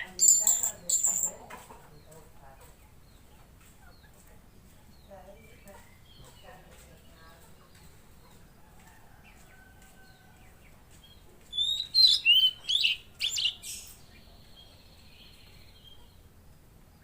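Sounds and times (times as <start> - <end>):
bird chirping whistles: 0.0 - 1.3, 11.6 - 13.6.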